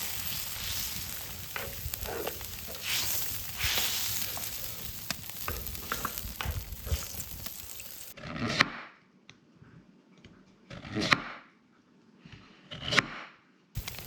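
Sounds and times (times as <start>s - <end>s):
food sizzling and frying: 0.0s - 8.2s, 13.8s - 14.0s.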